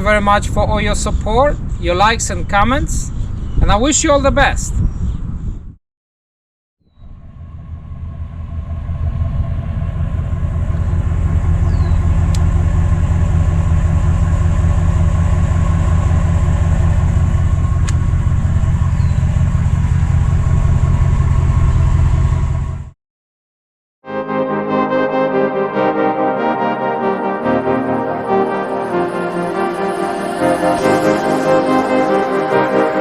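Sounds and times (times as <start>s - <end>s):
engine running steadily: 7.1s - 22.9s.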